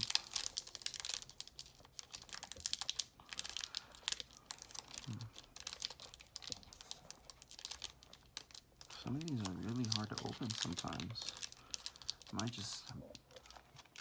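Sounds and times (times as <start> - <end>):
foil wrapper crinkling: 0.0 - 14.0.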